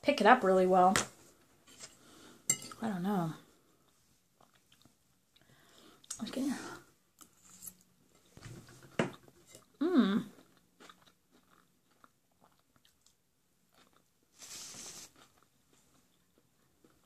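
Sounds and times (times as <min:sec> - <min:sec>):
person humming: 0:09.8 - 0:10.3
close chewing and biting: 0:10.4 - 0:14.1
soft hiss: 0:14.3 - 0:15.4.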